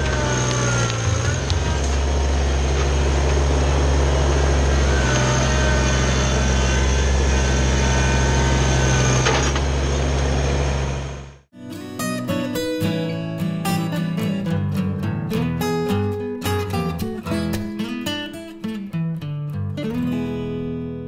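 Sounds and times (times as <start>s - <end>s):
tractor diesel engine running: 0.0s - 11.5s.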